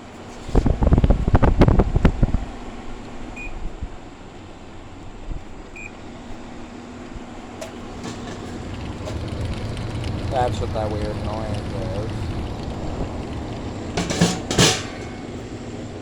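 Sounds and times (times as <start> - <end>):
low steady hum: 0.9 - 16.0
air conditioner control panel beeps: 3.3 - 3.7, 5.6 - 6.5
clattering knocks: 7.6 - 15.8.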